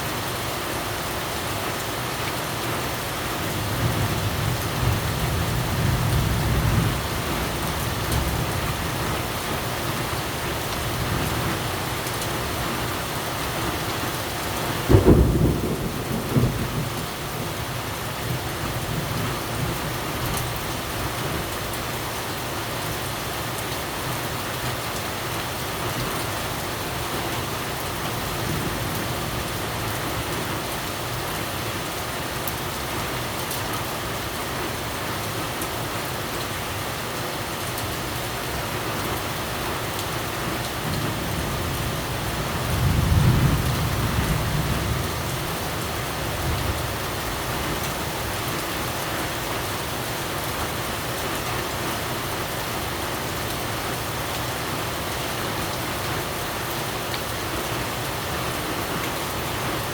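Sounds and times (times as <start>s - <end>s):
steady rain falling: 0.0s - 59.9s
thunder clap and rumble: 14.8s - 19.8s, 40.8s - 47.8s.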